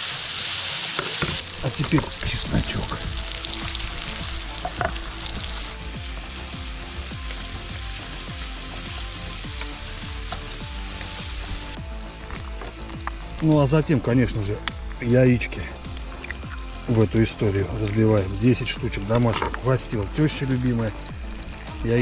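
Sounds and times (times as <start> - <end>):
food sizzling in a frying pan: 0.0 - 13.8.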